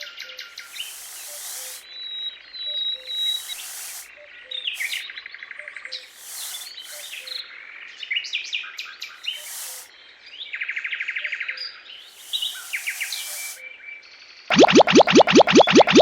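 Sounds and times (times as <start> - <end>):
bursts of hiss: 0.7 - 1.8, 3.4 - 4.1, 6.1 - 7.2, 9.3 - 9.9.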